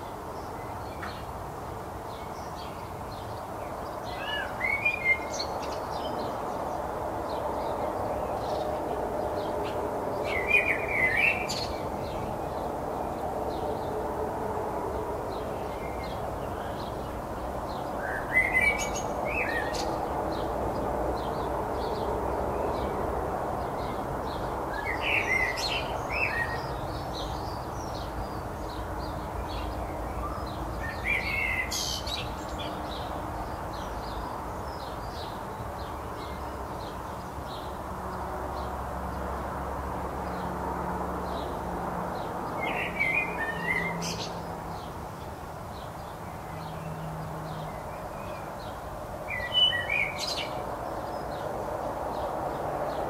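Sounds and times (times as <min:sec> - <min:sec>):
bird singing song phrase: 0:02.1 - 0:14.0, 0:15.3 - 0:20.5, 0:23.6 - 0:37.7, 0:42.2 - 0:51.5.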